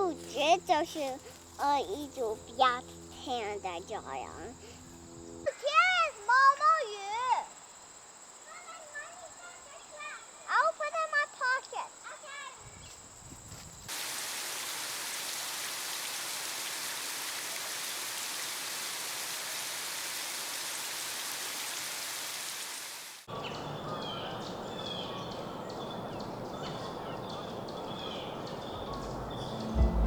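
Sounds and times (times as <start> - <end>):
steady hiss: 13.7 - 23.3
steady rain falling: 13.9 - 23.4.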